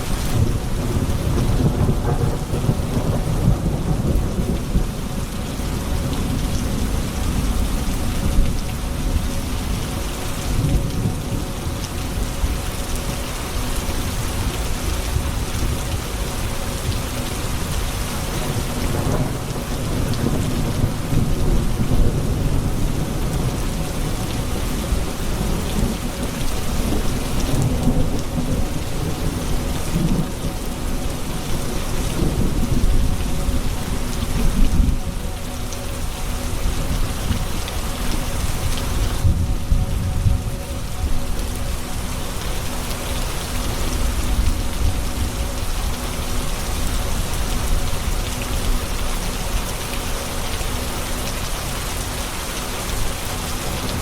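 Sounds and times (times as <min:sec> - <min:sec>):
heavy rain: 0:00.0 - 0:54.0
low rolling thunder: 0:00.2 - 0:42.2.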